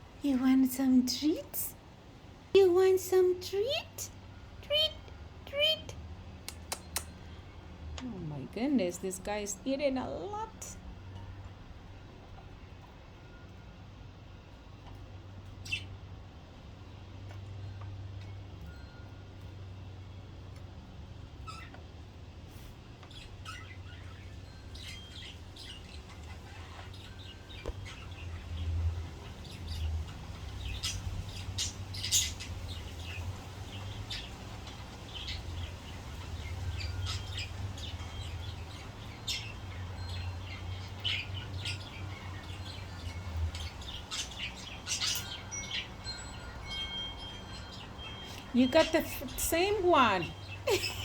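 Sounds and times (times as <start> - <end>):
budgies chirping and squawking: 15.6 - 16.0, 21.4 - 21.8, 22.6 - 46.8.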